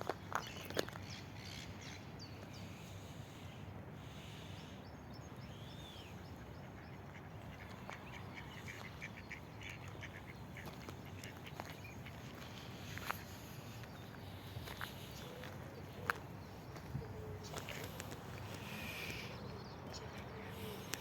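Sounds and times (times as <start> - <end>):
faint bird calls: 0.4 - 21.0.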